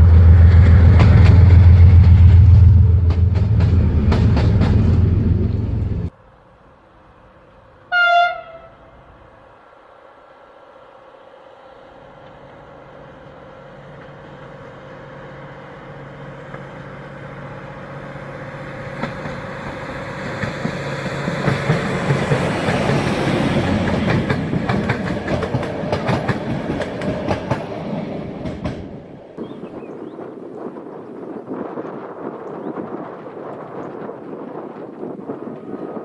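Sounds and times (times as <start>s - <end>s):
train passing with low hum: 0.0s - 36.0s
wheels clicking over rail joints: 18.6s - 29.1s.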